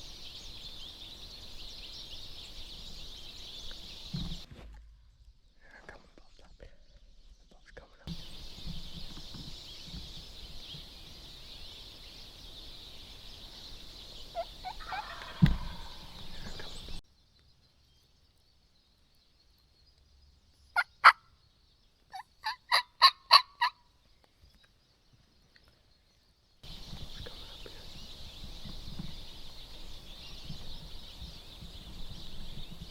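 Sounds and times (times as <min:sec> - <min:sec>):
high background hiss: 0:08.1 - 0:14.4, 0:26.6 - 0:32.9
turkey calling: 0:14.2 - 0:17.0, 0:20.8 - 0:21.2, 0:22.1 - 0:23.8
dull thud: 0:15.4 - 0:15.9.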